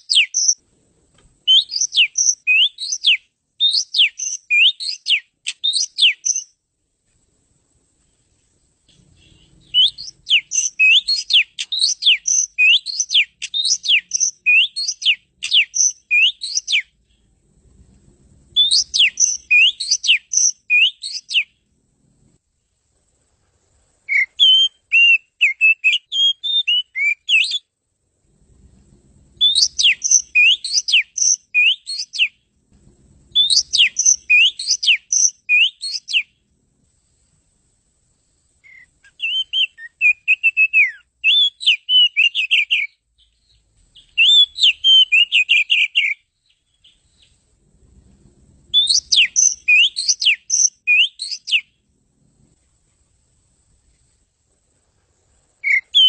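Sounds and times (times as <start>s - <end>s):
songbird whistling song: 0.0s - 0.6s, 1.4s - 6.6s, 8.9s - 17.4s, 18.5s - 21.6s, 24.0s - 27.7s, 29.4s - 32.5s, 33.3s - 36.4s, 38.6s - 47.5s, 48.7s - 51.8s, 55.6s - 56.0s.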